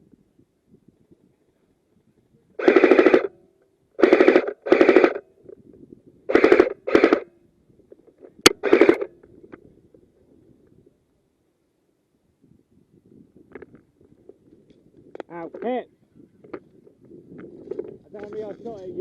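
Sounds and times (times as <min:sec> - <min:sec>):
airsoft gun bursts: 0:02.6 - 0:03.4, 0:04.0 - 0:05.2, 0:06.3 - 0:07.3, 0:08.4 - 0:09.1.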